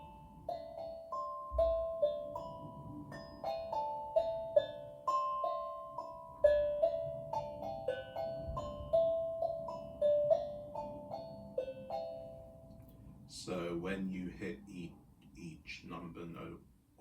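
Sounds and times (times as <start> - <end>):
tongue drum melody: 0.0 - 13.0.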